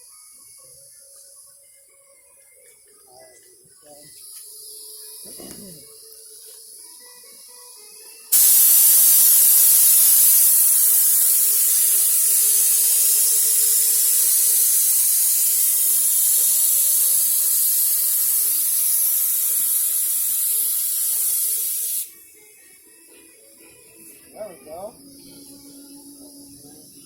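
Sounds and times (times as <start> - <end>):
paint spray gun hissing: 4.2 - 6.8, 8.3 - 22.1.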